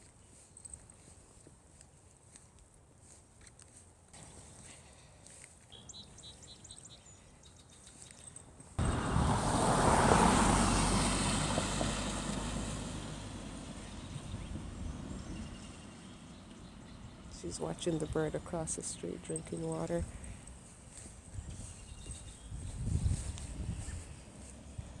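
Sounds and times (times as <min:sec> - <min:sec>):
car passing: 0:08.8 - 0:21.8, 0:22.6 - 0:25.0.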